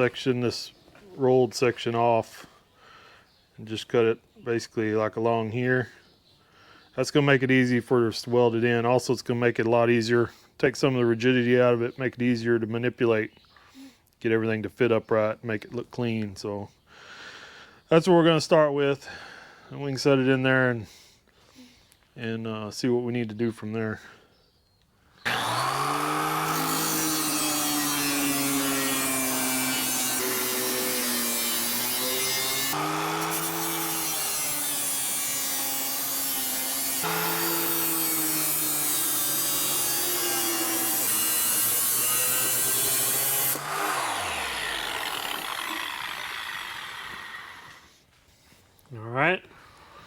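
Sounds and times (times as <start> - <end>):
power tool cutting sheet steel: 25.3 - 47.9
power tool spinning down: 25.3 - 47.9.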